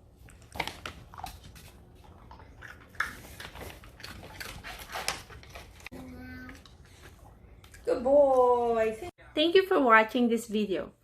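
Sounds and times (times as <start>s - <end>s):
dog crunching biscuit: 0.3s - 5.9s.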